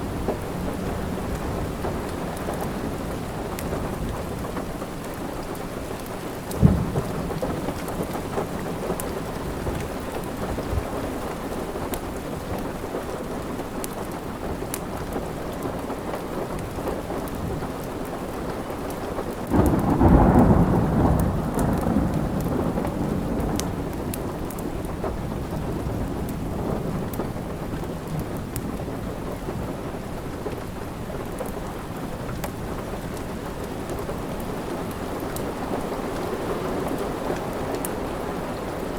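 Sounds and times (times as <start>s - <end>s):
steady rain: 0.0s - 38.9s
rumble of thunder: 6.5s - 11.0s, 19.4s - 30.6s.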